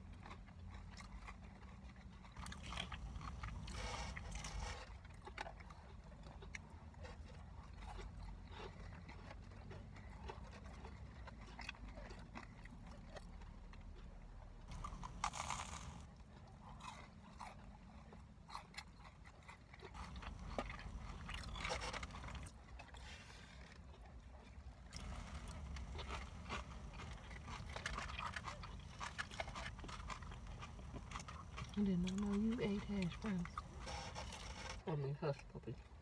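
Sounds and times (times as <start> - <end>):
person chewing crunchy food: 0.0 - 36.0
steady low rumble: 25.0 - 34.8.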